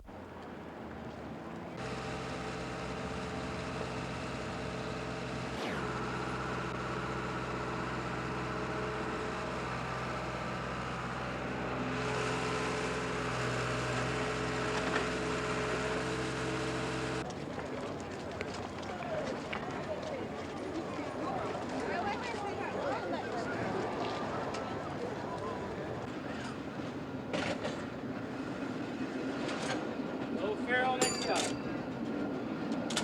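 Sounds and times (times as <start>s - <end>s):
engine humming: 0.0s - 29.1s.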